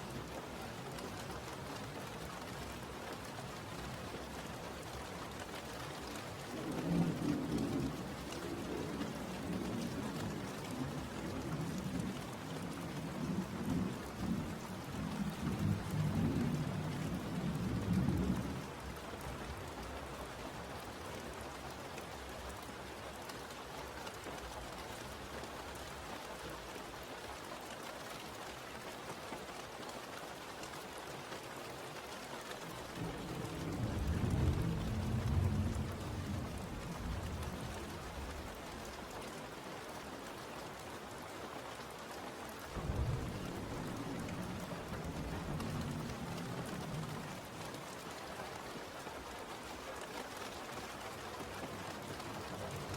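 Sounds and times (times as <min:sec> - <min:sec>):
steady rain: 0:00.0 - 0:52.9
thunder rumble: 0:33.0 - 0:38.6, 0:42.7 - 0:47.8.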